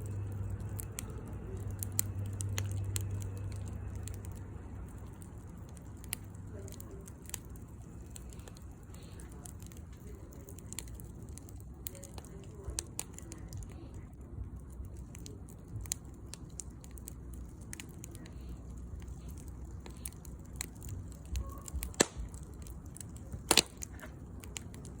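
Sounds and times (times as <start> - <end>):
loud sharp fire cracks: 0.0 - 25.0
low fire rumble: 0.0 - 25.0
wood fire crackling: 0.0 - 25.0.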